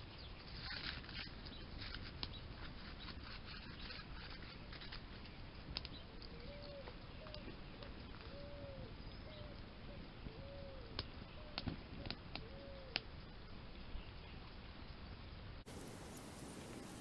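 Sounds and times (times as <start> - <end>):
campfire ticks and pops: 0.8 - 2.4, 4.7 - 8.3, 10.9 - 13.2, 15.7 - 17.0
fire hissing: 15.7 - 17.0.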